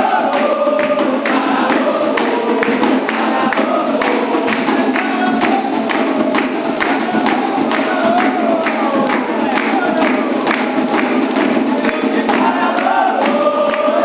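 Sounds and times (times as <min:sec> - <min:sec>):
percussion beating driving rhythm: 0:00.0 - 0:14.0
voices singing: 0:00.0 - 0:14.0.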